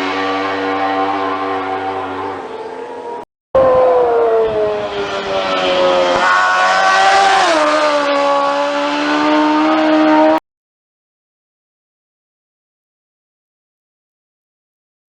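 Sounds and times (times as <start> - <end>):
racing motorcycle engine revving: 0.0 - 10.4.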